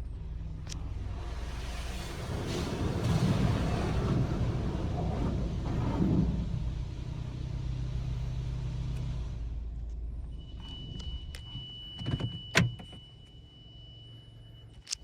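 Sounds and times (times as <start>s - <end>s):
car engine rumbling: 0.0s - 11.4s.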